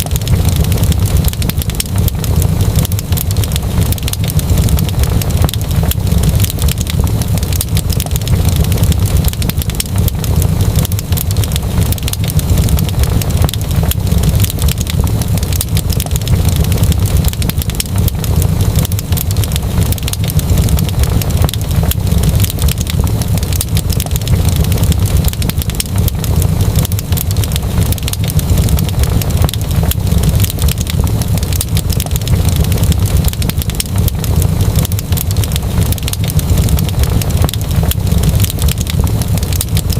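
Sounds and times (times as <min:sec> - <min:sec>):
fire crackling: 0:00.0 - 0:39.9
fire rumbling: 0:00.0 - 0:39.9.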